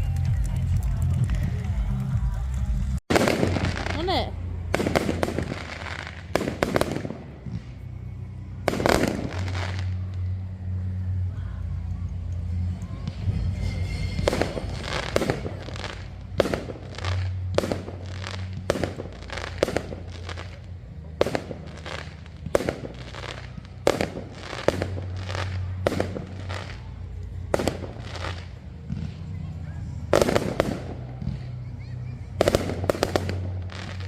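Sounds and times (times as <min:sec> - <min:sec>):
steady low rumble: 0:00.0 - 0:34.0
firework shells bursting with bangs: 0:03.1 - 0:08.0, 0:08.6 - 0:10.3, 0:12.1 - 0:29.3, 0:30.0 - 0:31.4, 0:32.4 - 0:34.0.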